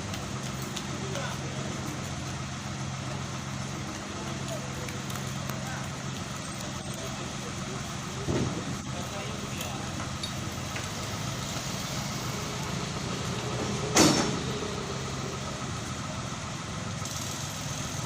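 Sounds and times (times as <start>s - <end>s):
diesel engine idling: 0.0s - 18.0s
loud short engine burst: 11.4s - 15.4s.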